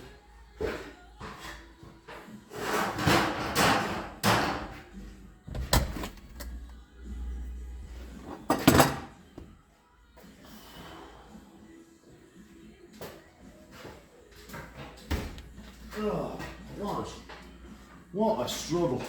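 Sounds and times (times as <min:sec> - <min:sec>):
tools and parts clattering: 0:02.8 - 0:04.9, 0:05.5 - 0:06.7, 0:08.2 - 0:09.2.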